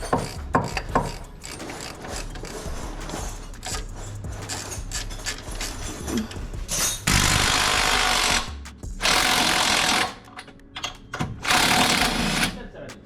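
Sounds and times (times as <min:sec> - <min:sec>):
impact wrench hammering: 0:00.0 - 0:02.6, 0:06.7 - 0:10.2, 0:11.2 - 0:12.6.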